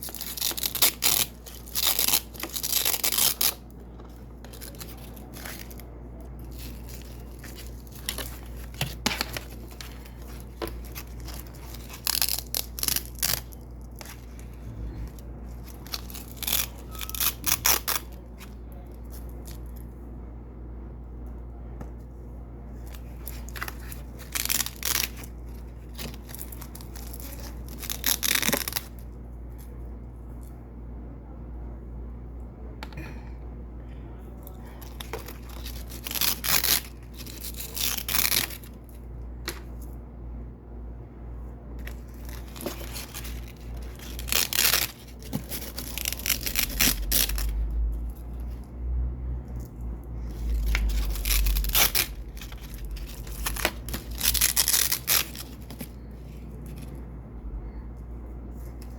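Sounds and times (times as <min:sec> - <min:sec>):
hook-and-loop strip ripping: 0:00.0 - 0:03.6, 0:06.5 - 0:14.5, 0:15.6 - 0:18.3, 0:23.0 - 0:29.0, 0:34.8 - 0:38.8, 0:41.8 - 0:48.5, 0:49.6 - 0:56.0.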